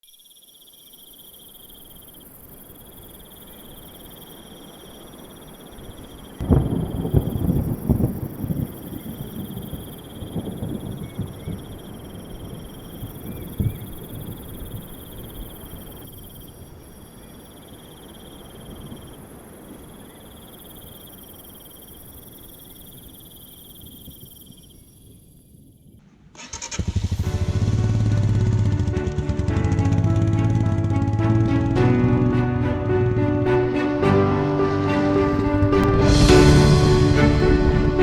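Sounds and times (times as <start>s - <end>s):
insects shrilling: 0.1s - 25.7s
low rumble: 26.9s - 33.8s, 34.8s - 38.0s
loud background music: 27.1s - 38.0s.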